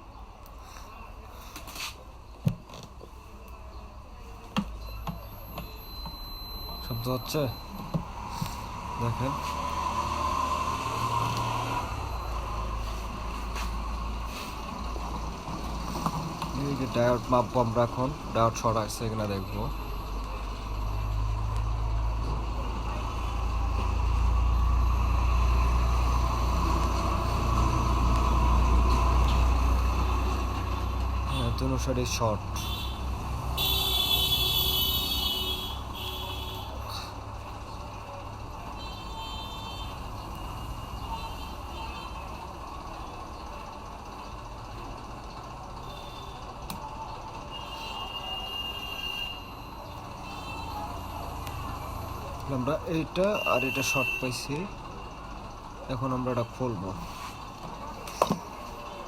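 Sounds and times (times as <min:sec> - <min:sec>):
multimeter continuity beep: 0:04.6 - 0:08.1
engine-like rumbling: 0:08.0 - 0:59.0.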